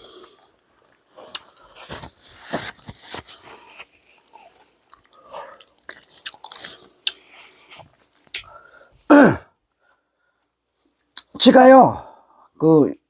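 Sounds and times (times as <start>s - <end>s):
person chewing food: 0.0s - 1.8s, 3.4s - 8.6s.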